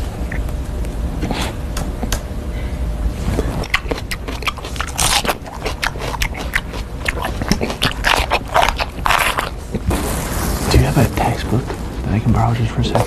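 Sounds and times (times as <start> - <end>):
person chewing crunchy snack: 3.3 - 10.5.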